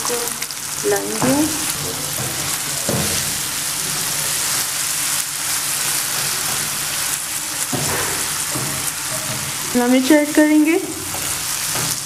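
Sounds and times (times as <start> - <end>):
food sizzling in hot oil: 0.0 - 12.0
spatula scraping a pan: 1.6 - 9.9.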